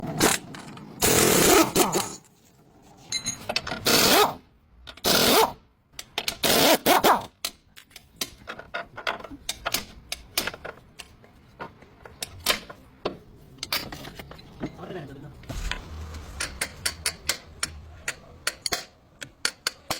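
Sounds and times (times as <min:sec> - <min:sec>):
noisy bursts: 0:15.4 - 0:19.2.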